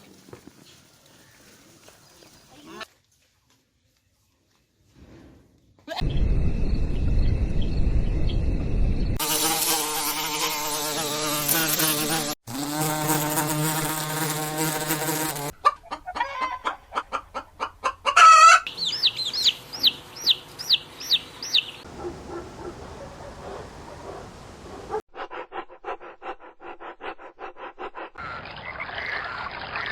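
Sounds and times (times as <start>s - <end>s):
insect buzz: 9.2s - 15.5s
chickens clucking: 15.6s - 24.2s.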